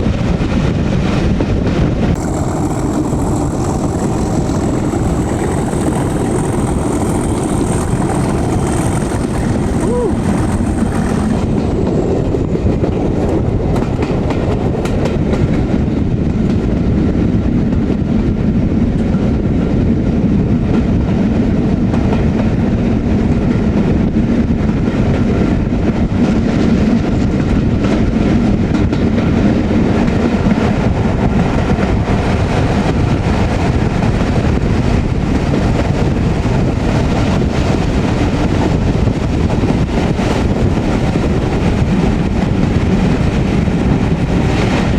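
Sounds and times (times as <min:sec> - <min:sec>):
diesel locomotive drone: 0:00.0 - 0:44.9
train wheels clattering on rails: 0:00.0 - 0:44.9.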